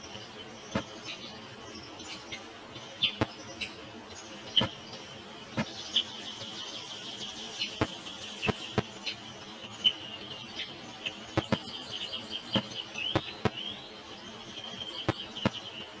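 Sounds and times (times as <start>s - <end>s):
small birds chirping: 0.0s - 16.0s
sharp clicks: 11.4s - 11.6s.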